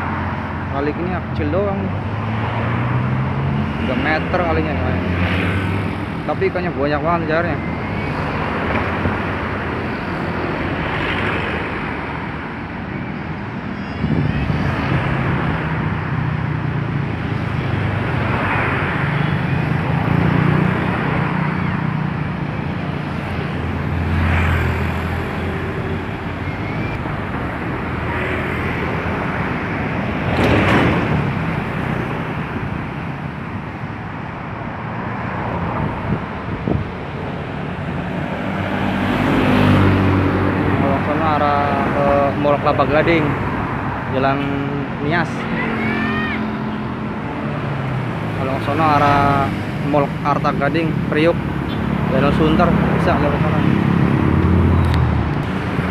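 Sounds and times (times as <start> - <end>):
road traffic passing: 0.0 - 55.9
wind buffeting microphone: 13.9 - 16.3, 35.5 - 38.6.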